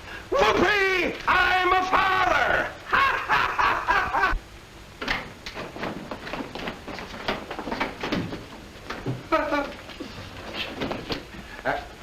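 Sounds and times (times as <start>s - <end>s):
man whooping excitedly: 0.3s - 4.2s
knocks and clatter: 5.0s - 9.3s.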